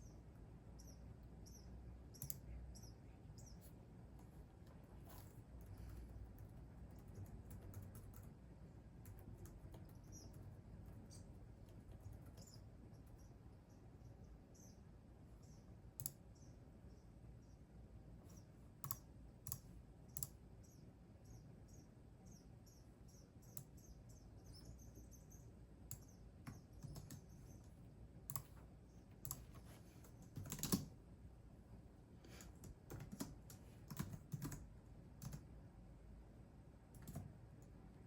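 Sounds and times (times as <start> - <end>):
faint high chirps: 0.0 - 3.8, 20.1 - 27.8
keyboard typing: 4.2 - 8.4, 9.0 - 13.3, 18.3 - 20.4, 25.9 - 30.9, 32.3 - 35.5, 37.0 - 37.3.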